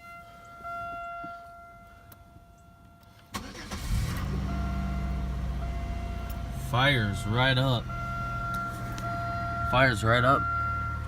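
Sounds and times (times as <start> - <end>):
car engine starting and idling: 3.1 - 11.0
car starter cranking: 3.3 - 5.6.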